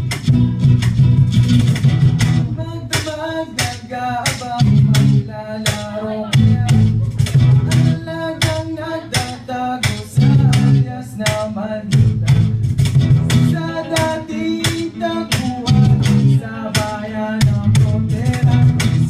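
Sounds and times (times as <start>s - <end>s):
percussive beat: 0.0s - 19.0s
strummed acoustic guitar: 0.0s - 19.0s
person singing: 2.5s - 12.6s, 13.3s - 19.0s.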